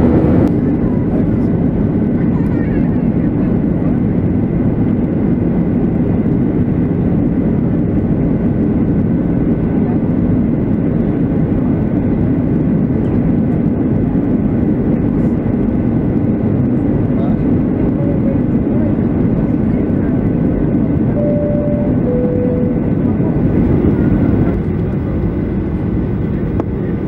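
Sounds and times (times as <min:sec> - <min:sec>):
airplane cabin engine rush: 0:00.0 - 0:27.0
faint steady whining tones: 0:21.2 - 0:24.0.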